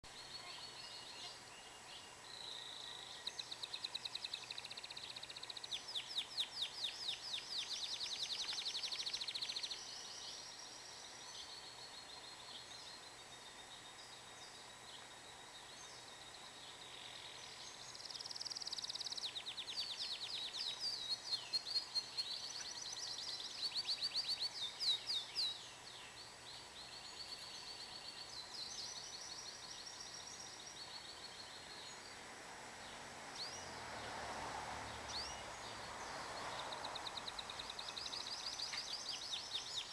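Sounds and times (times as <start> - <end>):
canary singing: 17.9 - 25.6.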